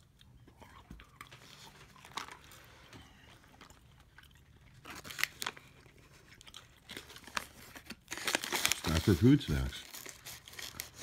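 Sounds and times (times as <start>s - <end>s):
person chewing crunchy food: 0.0s - 8.8s.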